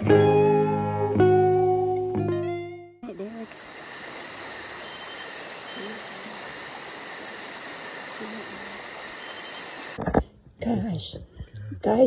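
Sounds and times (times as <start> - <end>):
insects trilling: 3.0 - 10.0
steady hiss: 3.1 - 10.0.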